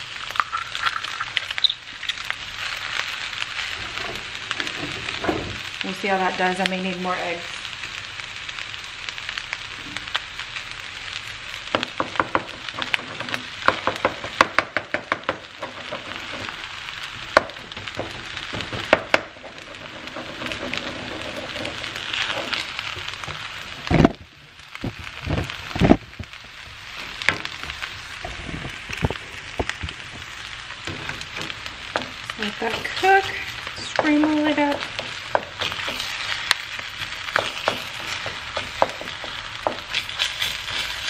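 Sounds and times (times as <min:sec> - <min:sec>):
rice sizzling in a wok: 0:00.0 - 0:41.0
wooden spatula scraping pan: 0:17.7 - 0:23.7, 0:30.8 - 0:41.0.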